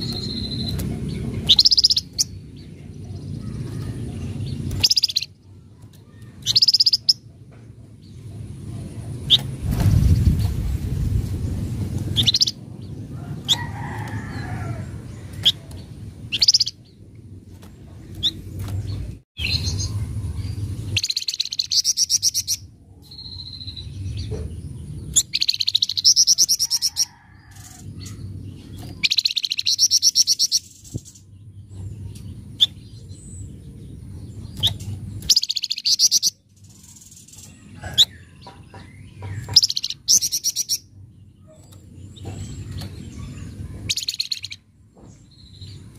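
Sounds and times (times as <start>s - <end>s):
sharp bird chirps: 0.0s - 2.4s, 4.6s - 5.3s, 19.4s - 24.2s, 34.6s - 38.2s
songbird harsh chattering calls: 0.0s - 2.4s, 3.4s - 5.4s, 6.0s - 7.2s, 16.3s - 16.8s, 34.5s - 44.6s.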